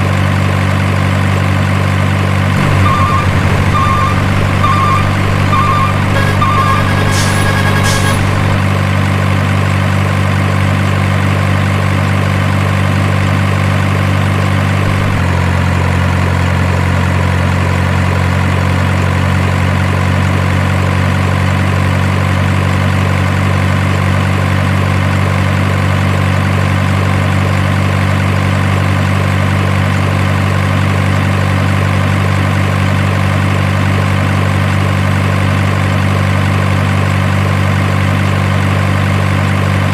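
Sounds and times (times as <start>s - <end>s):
diesel truck engine idling: 0.0s - 17.8s
short beeps: 2.6s - 8.8s.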